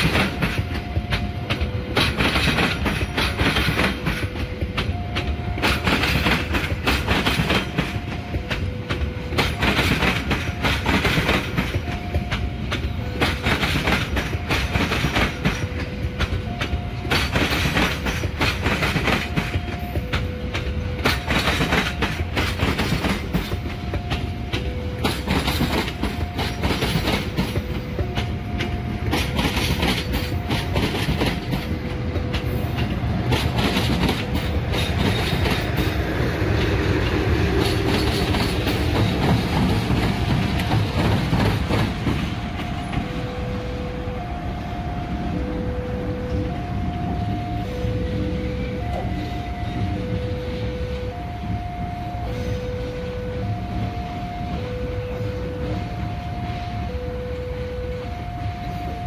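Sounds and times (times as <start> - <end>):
train wheels clacking over joints: 0.0 - 43.4.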